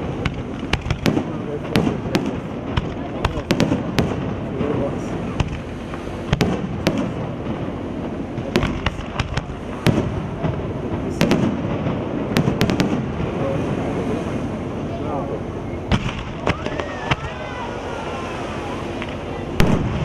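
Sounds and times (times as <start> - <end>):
firework shells bursting with bangs: 0.0 - 13.4.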